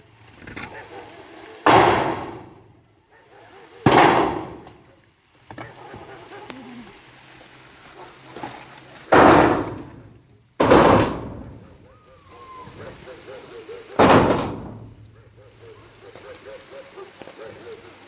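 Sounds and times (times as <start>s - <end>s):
low steady background noise: 0.0s - 18.0s
heavy impacts: 1.7s - 2.7s, 3.9s - 4.8s, 9.1s - 11.8s, 14.0s - 15.1s.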